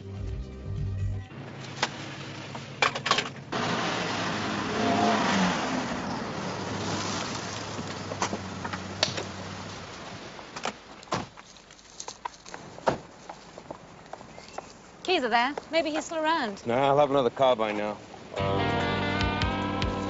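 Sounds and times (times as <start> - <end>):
car pulling away: 0.1 - 10.6.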